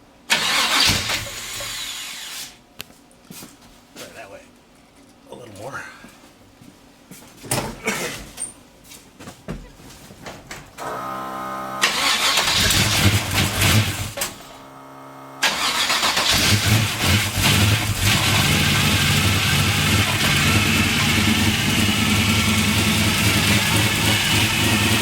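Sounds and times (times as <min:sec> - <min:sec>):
starter cranking engine: 0:00.3 - 0:02.1, 0:11.8 - 0:14.4, 0:15.4 - 0:25.0
engine mechanical noise: 0:00.3 - 0:02.5, 0:10.8 - 0:25.0
engine running loudly: 0:16.2 - 0:25.0.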